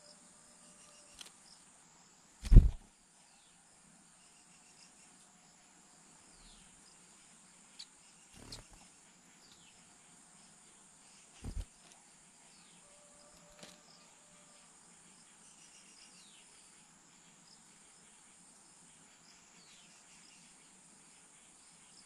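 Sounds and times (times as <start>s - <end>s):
dull low thump: 2.4s - 2.8s
insects chirring: 7.7s - 8.8s.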